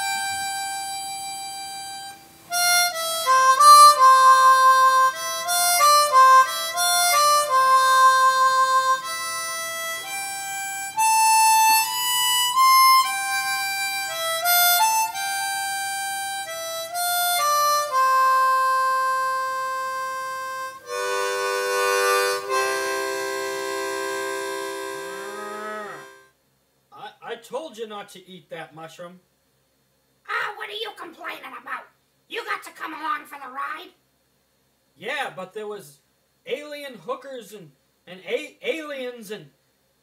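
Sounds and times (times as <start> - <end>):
harmonica melody: 0.0 - 26.3.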